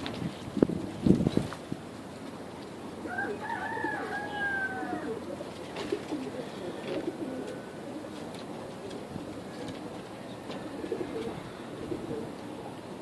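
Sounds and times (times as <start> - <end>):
pigeons cooing: 2.7 - 13.0
high falling pigeon call: 3.0 - 12.7.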